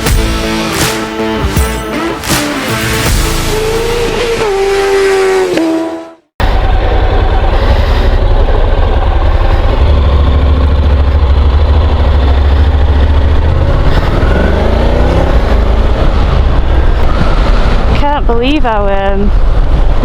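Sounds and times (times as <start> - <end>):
motorcycle engine: 0.0 - 20.0
heavy wind rumble: 6.4 - 20.0.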